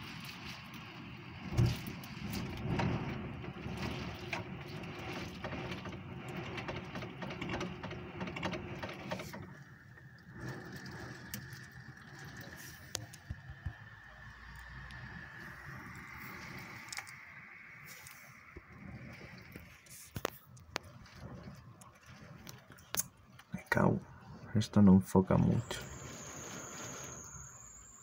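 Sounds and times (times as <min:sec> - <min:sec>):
gusty wind: 0:00.0 - 0:27.9
heavy rain against window: 0:00.0 - 0:28.0
thin high whistle: 0:25.6 - 0:28.0.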